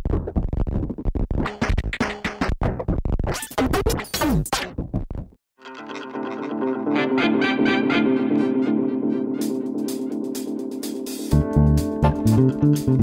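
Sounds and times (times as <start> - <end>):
turntable scratching: 0.0 - 5.3
electronic music with fast beat: 9.4 - 13.0.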